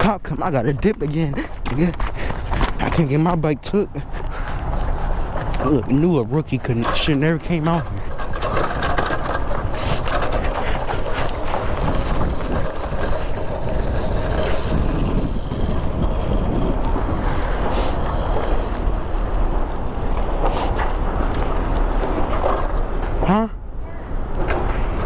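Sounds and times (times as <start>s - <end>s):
wind rush: 3.9s - 23.0s
mini bike engine running: 6.5s - 22.9s.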